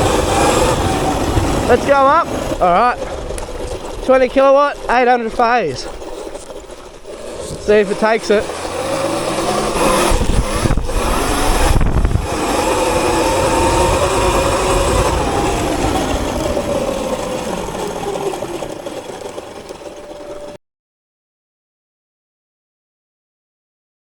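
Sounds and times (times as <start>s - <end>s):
wind rushing over microphone: 0.0s - 18.6s
electric motor whining: 0.0s - 20.6s.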